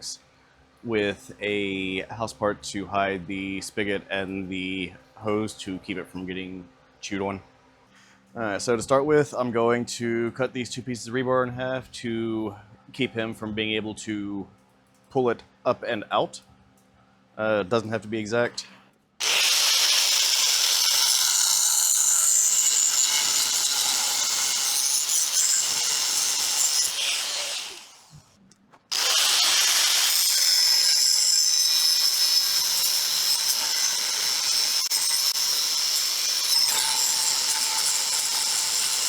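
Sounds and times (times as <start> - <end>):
power tool cutting steel: 19.2 - 28.3, 28.9 - 39.0.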